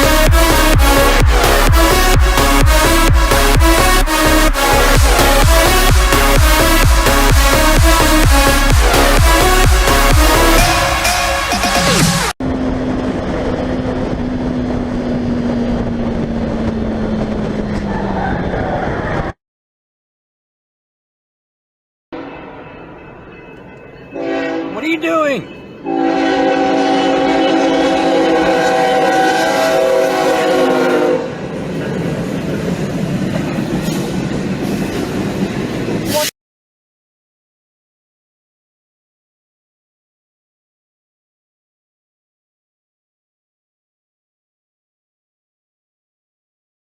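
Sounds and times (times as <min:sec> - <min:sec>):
loud horn chord: 0:00.0 - 0:12.3, 0:24.2 - 0:24.8, 0:25.8 - 0:31.3
road and engine rumble: 0:11.3 - 0:19.4.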